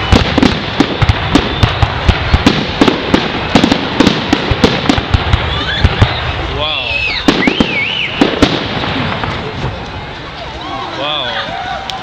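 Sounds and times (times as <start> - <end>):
firework shells bursting: 0.0 - 6.3, 7.1 - 10.0
fireworks crackling: 0.0 - 12.0.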